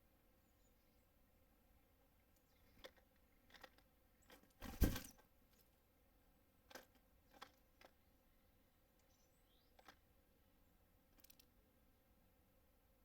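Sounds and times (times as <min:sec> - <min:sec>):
birds tapping and pecking: 0:02.1 - 0:05.8, 0:06.6 - 0:08.1, 0:08.9 - 0:10.2, 0:11.1 - 0:11.6.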